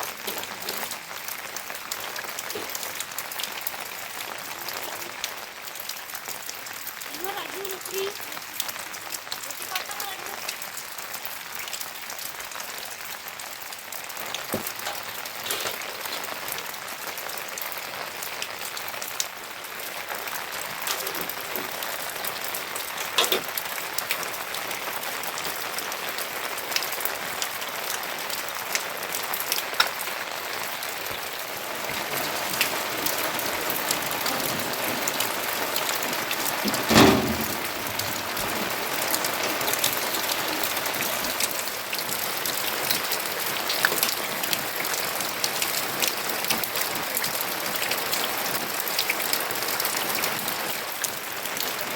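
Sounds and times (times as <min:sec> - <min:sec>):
raindrops tapping: 0:00.0 - 0:51.9
steady rain: 0:00.0 - 0:51.9
loud knock: 0:36.7 - 0:38.3.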